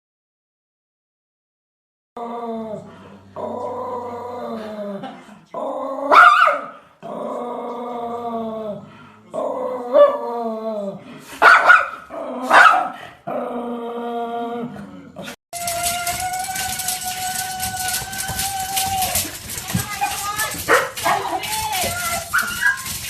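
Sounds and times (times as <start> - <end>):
puppy growling whines: 2.2 - 5.0
puppy barking: 6.1 - 6.7, 11.4 - 13.0, 19.6 - 23.0.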